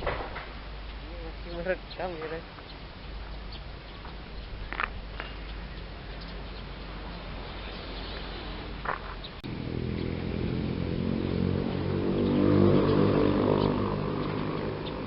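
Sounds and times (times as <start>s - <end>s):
bird chirp: 0.8s - 15.0s
passing vehicle engine drone: 6.0s - 15.0s.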